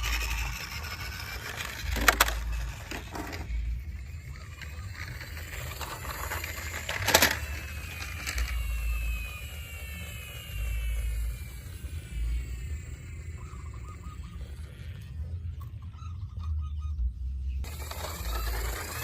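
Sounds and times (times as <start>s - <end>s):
toy vehicles being handled: 0.0s - 13.8s, 17.6s - 19.0s.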